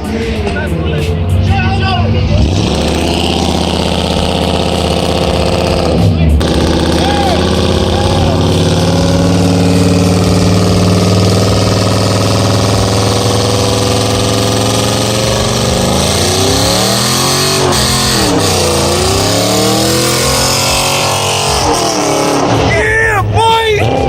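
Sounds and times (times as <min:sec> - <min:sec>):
car engine at high revs: 0:01.0 - 0:23.0.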